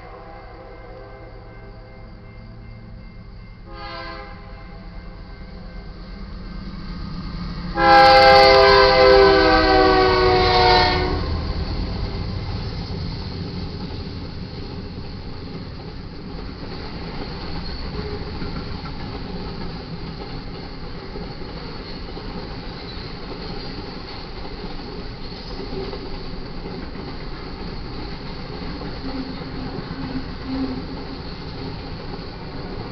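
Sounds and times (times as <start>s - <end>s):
passing train rumble: 0.0s - 32.9s
locomotive horn chord: 3.6s - 5.1s, 7.7s - 11.5s.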